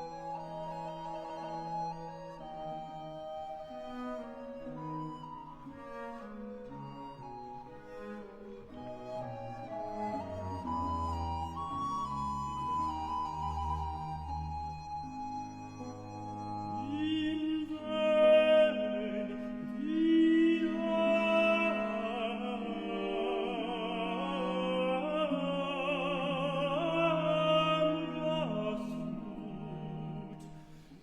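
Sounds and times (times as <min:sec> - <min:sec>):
basso continuo: 0:00.0 - 0:31.0
two men singing duet: 0:16.8 - 0:30.4.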